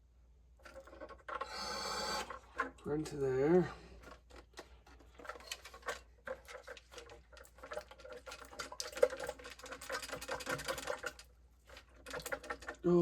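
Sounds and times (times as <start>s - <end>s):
plastic part rattling when shaken: 4.0s - 12.9s.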